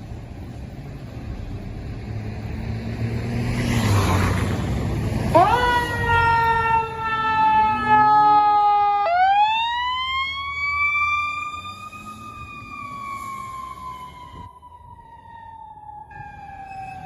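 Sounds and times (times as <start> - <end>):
fire engine siren wailing: 5.2 - 17.0.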